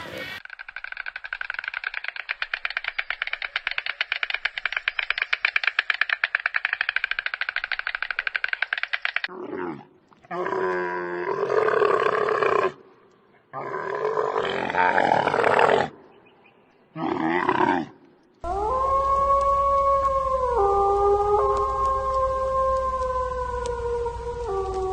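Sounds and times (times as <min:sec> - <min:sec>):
animal rattle-like call: 0:00.0 - 0:09.3, 0:17.1 - 0:24.9
animal calls: 0:00.0 - 0:09.8, 0:11.3 - 0:24.9.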